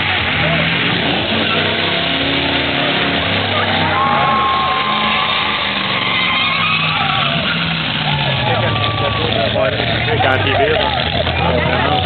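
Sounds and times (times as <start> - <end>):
car engine at high revs: 0.0 - 12.0
tyres squealing: 1.0 - 10.1.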